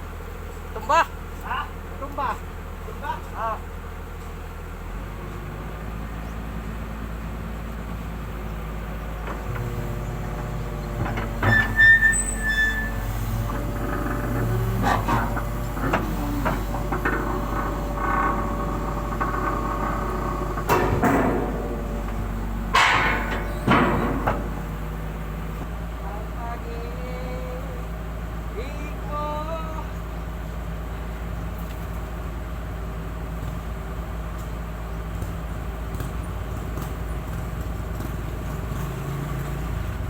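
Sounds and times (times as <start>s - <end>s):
heavy machine engine running: 3.7s - 40.0s
loud metal clanks and knocks: 9.2s - 25.8s
short high squeal: 11.4s - 15.1s.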